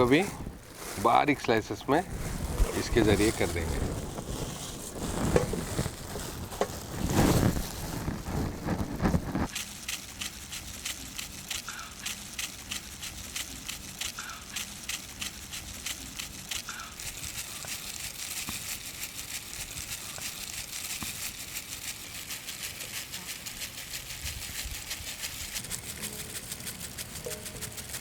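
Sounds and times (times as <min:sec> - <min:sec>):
grater scraping cheese: 0:00.0 - 0:28.0.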